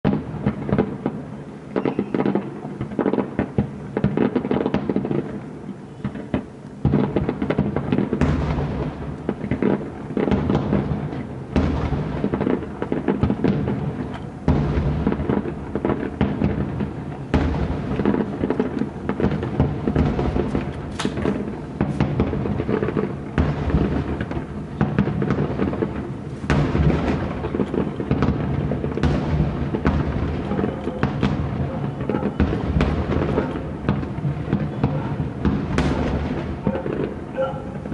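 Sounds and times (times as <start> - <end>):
fireworks bursting with crackle: 0.0 - 37.9.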